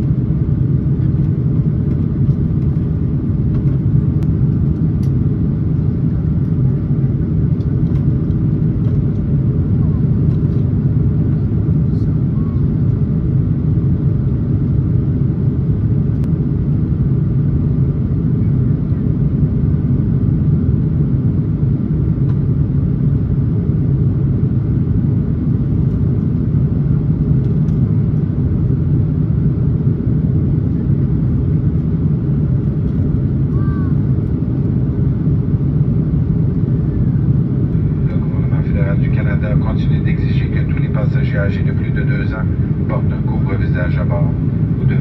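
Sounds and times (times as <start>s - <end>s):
aircraft cabin engine rumble: 0.0s - 45.0s.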